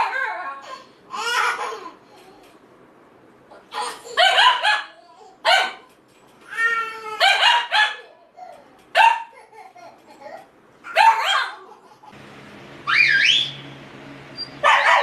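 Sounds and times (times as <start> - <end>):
dog yelping and whining: 10.9 - 11.6.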